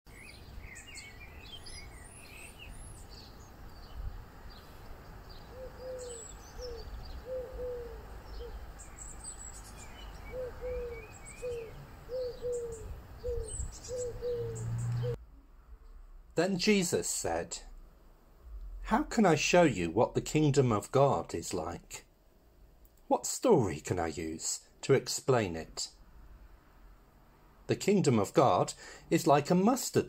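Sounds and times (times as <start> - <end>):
small birds chirping: 0.1 - 15.2
low cooing bird: 5.4 - 15.2.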